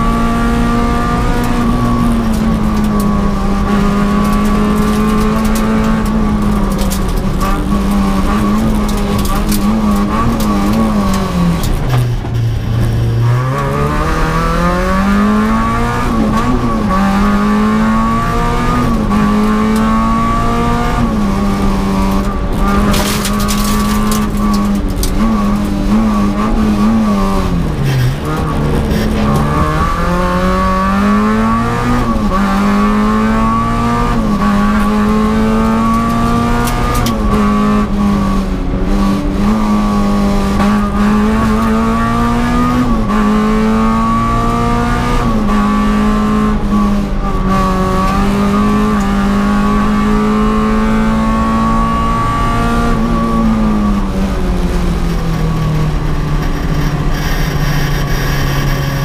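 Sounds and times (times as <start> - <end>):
car engine at high revs: 0.0 - 59.0.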